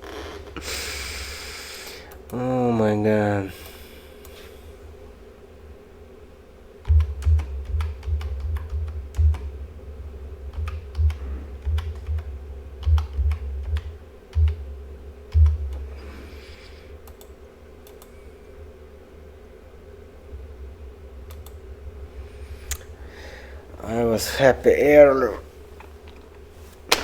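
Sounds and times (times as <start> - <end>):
faint steady hum: 0.0 - 27.0
short hiss: 0.1 - 2.2
keyboard typing clicks: 6.8 - 9.5, 10.5 - 14.6, 15.3 - 15.9, 17.0 - 18.1, 21.3 - 21.6.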